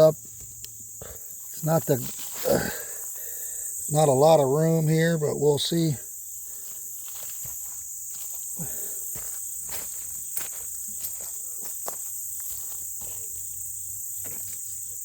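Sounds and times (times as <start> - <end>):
high-pitched insect chorus: 0.0 - 15.0
footsteps: 6.6 - 13.4.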